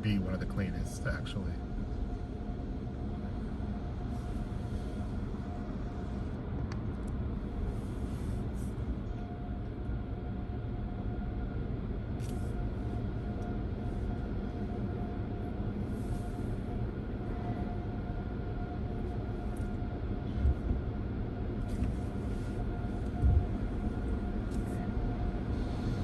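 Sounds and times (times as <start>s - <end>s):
constant hum: 0.0s - 26.0s.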